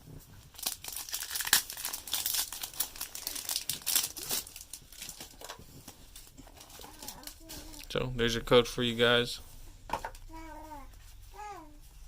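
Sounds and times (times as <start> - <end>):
foil pack crinkling: 0.4 - 7.9.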